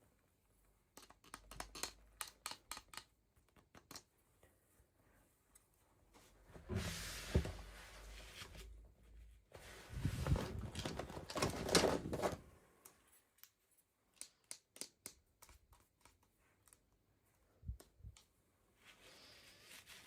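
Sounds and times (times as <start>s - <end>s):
small sharp clicks and taps: 0.9s - 4.1s, 12.8s - 17.0s
packaging rustling and crinkling: 10.0s - 12.5s.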